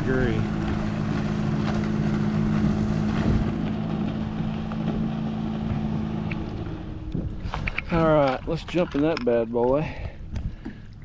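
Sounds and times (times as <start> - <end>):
watercraft engine droning: 0.0 - 11.0.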